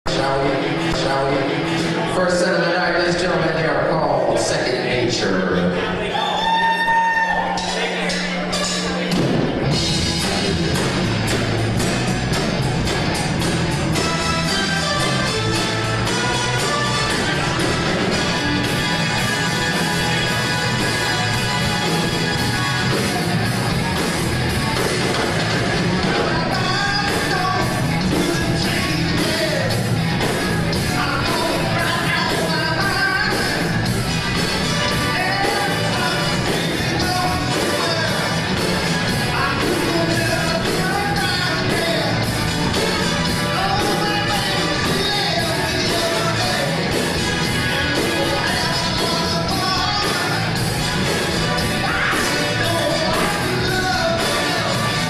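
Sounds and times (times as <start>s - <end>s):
live band playing: 0.1s - 55.0s
lead singer singing: 26.0s - 29.9s, 30.7s - 33.9s, 34.7s - 38.5s, 39.1s - 42.5s, 43.3s - 55.0s.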